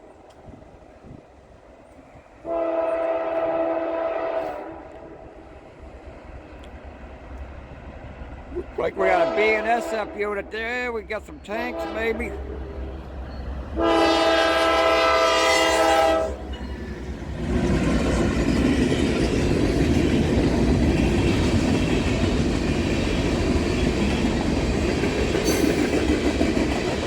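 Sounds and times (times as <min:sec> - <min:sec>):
train wheels rumbling on rails: 0:00.0 - 0:27.0
locomotive air horn blast: 0:02.4 - 0:05.2, 0:09.0 - 0:10.2, 0:11.7 - 0:12.6, 0:13.8 - 0:16.4.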